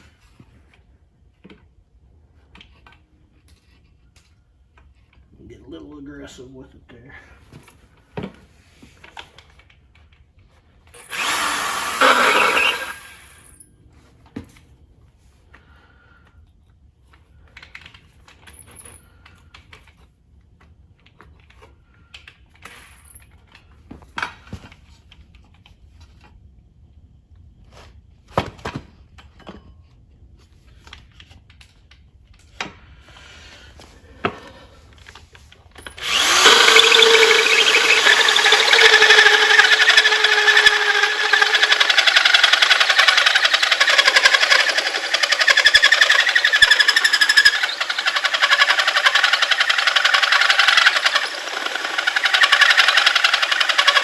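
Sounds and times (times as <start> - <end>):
power tool whining on metal: 11.0 - 13.6, 35.8 - 54.0.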